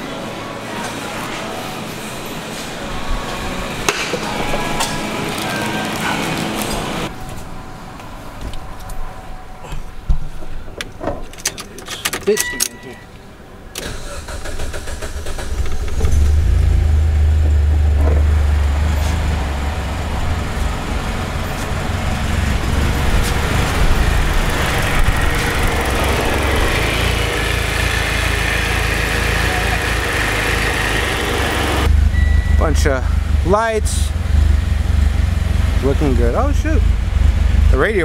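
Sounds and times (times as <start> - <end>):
car engine starting and idling: 13.7 - 38.0.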